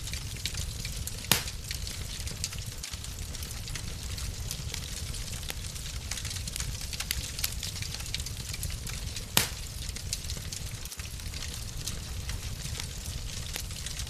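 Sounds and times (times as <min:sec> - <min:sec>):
fireplace fire crackling: 0:00.0 - 0:14.0
low fire rumble: 0:00.0 - 0:14.0
loud fire pop: 0:01.2 - 0:02.0, 0:09.3 - 0:10.0.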